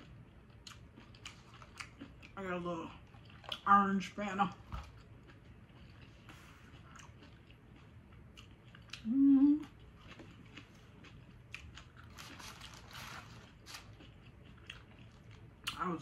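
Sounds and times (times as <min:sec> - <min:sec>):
wet chewing crunches: 0:00.0 - 0:09.1
closed-mouth hum: 0:01.8 - 0:11.7.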